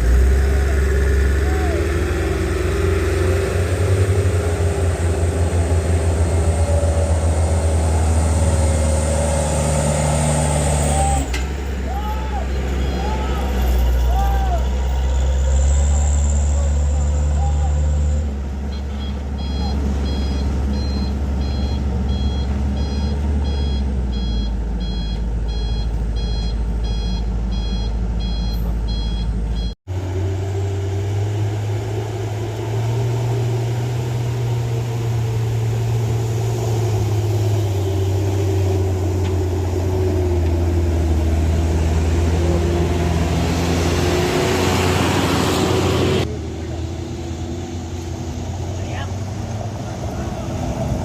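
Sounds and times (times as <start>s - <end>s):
diesel truck engine running: 0.0s - 51.0s
reversing alarm beeping: 18.7s - 29.8s.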